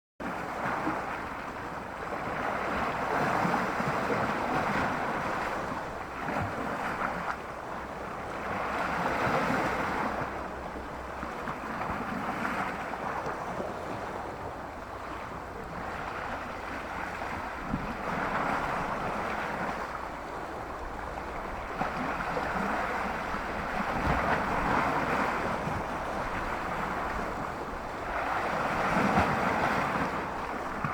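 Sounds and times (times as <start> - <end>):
sea waves washing on shore: 0.2 - 30.9
wind rumbling on microphone: 0.2 - 30.9.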